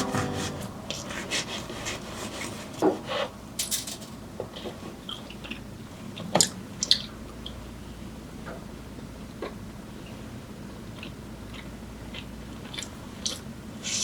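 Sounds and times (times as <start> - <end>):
sharp knocks: 0.0 - 0.8.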